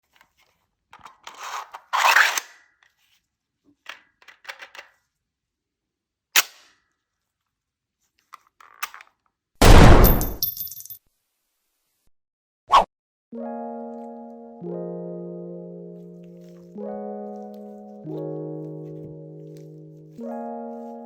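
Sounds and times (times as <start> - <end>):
loud gunshot-like bang: 9.6 - 10.4.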